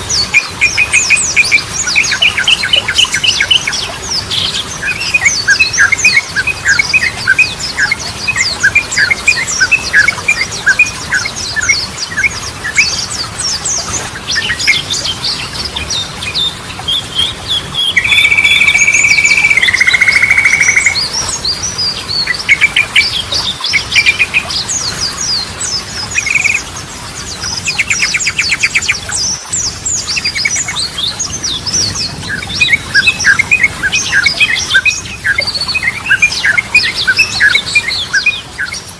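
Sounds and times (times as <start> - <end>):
loud held bird whistle: 17.8 - 21.0, 26.2 - 26.6
bird chirping and chattering: 17.8 - 21.2, 25.2 - 26.6.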